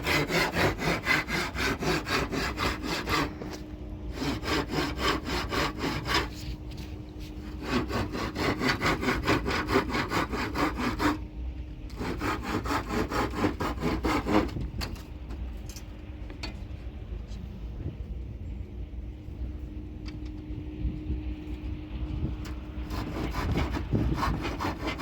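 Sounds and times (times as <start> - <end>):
handsaw cutting wood: 0.0 - 11.2, 11.9 - 14.6, 22.8 - 25.0.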